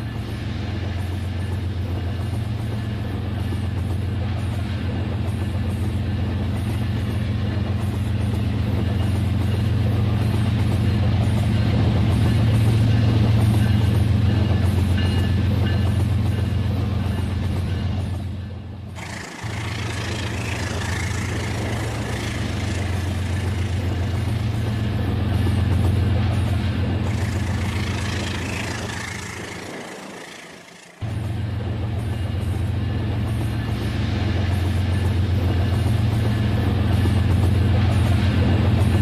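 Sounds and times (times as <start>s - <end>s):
wheels clattering over rails: 18.9s - 31.4s
toy train motor hum: 19.0s - 24.6s, 27.1s - 31.2s.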